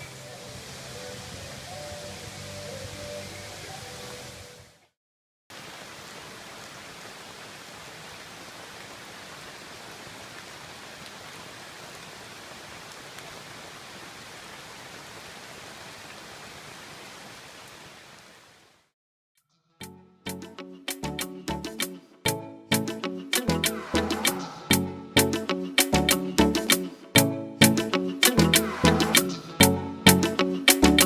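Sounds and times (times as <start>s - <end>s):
falling water rushing: 0.0s - 4.5s, 5.5s - 18.6s, 23.4s - 26.8s, 27.6s - 31.0s.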